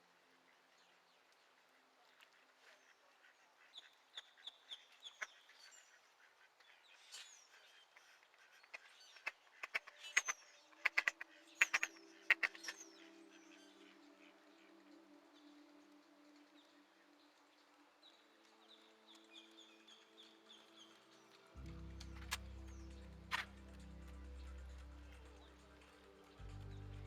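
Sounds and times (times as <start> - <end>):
waterbirds calling: 2.8 - 15.8.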